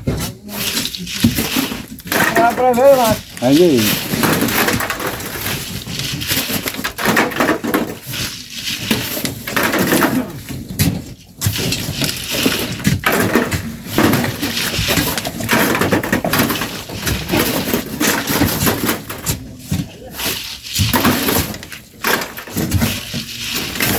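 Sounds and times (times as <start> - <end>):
shovels scraping into sand: 0.2 - 10.5, 20.0 - 23.9.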